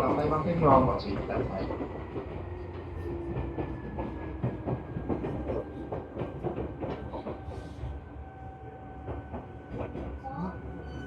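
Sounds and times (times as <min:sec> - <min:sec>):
train wheels clicking over rail joints: 0:01.2 - 0:07.8.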